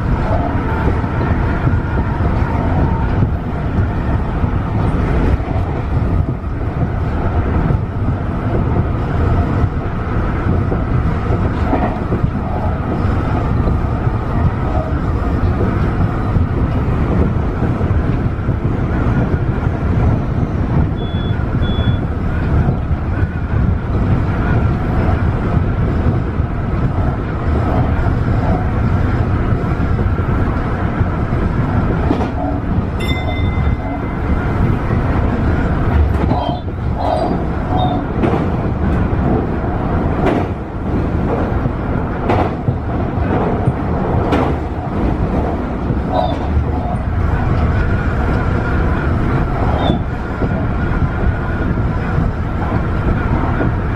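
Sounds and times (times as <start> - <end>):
train wheels rumbling on rails: 0.0 - 53.9
short high beeps: 21.0 - 22.0
brief tone: 21.0 - 22.1, 33.0 - 34.2.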